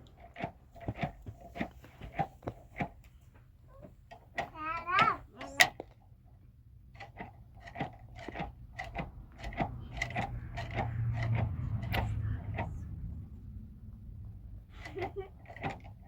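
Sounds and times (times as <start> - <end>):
low hum: 9.2 - 15.3.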